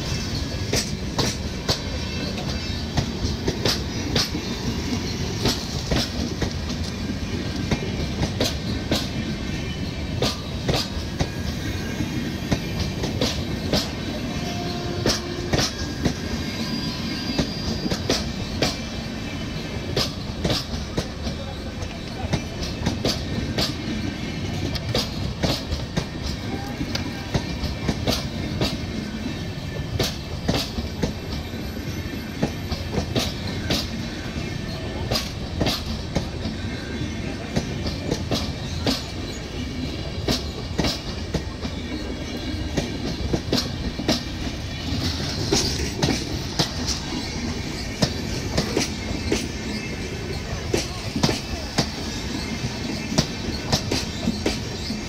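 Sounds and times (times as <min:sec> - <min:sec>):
train wheels rumbling: 0:00.0 - 0:55.0
wheels clacking over rail joints: 0:19.9 - 0:29.1, 0:40.2 - 0:55.0.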